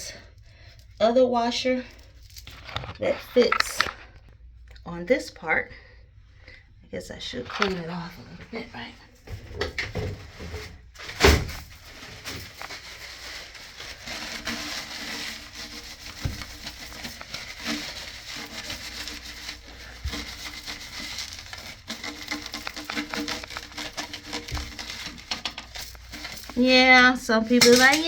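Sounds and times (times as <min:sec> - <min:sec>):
small clicks and scrapes: 0:01.9 - 0:04.3, 0:12.0 - 0:28.0
hands rubbing on fittings: 0:11.7 - 0:28.0.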